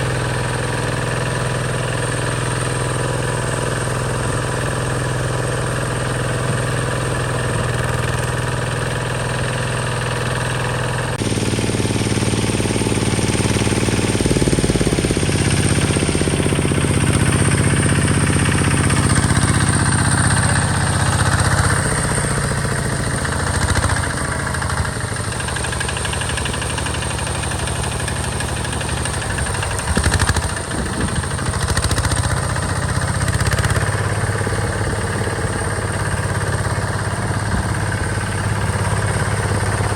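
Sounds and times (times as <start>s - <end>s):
diesel engine knocking: 0.0s - 39.9s
rattle: 23.2s - 32.6s.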